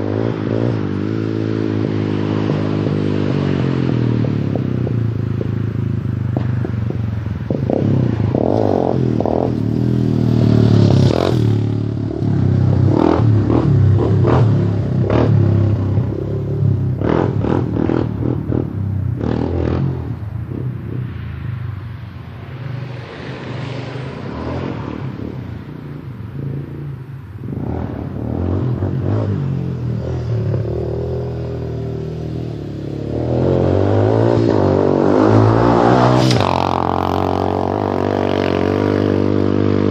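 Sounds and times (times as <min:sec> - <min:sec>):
quad engine revving: 0:07.5 - 0:20.1, 0:27.6 - 0:39.9.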